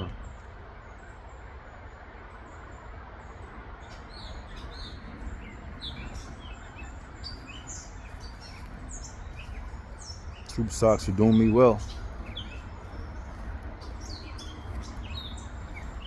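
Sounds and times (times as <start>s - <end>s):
low background rumble: 0.0s - 16.0s
birds chirping: 3.8s - 16.0s.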